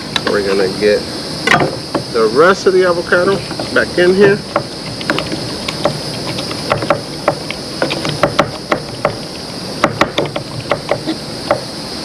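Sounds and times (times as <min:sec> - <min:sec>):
pestle tapping in a mortar: 0:04.4 - 0:11.7.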